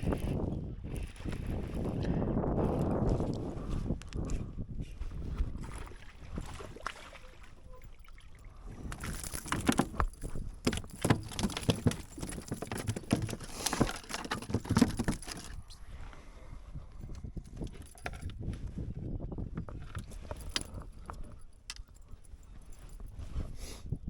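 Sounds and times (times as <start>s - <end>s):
gear knocking and rattling: 9.0s - 15.6s.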